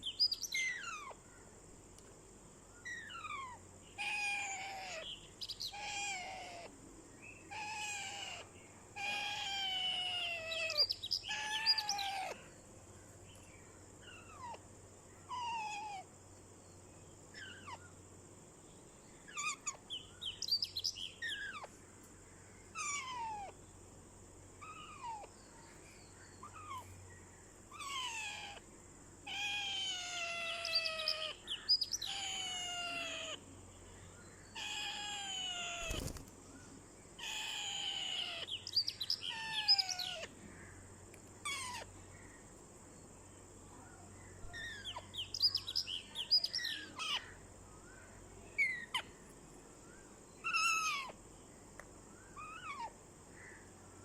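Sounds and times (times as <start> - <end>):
parrot calling: 2.9 - 6.7, 7.5 - 12.4, 22.7 - 23.6, 27.7 - 28.6, 29.2 - 33.4, 34.6 - 36.1, 37.2 - 40.3, 41.4 - 41.9, 44.5 - 47.3, 50.4 - 51.2, 52.4 - 52.9.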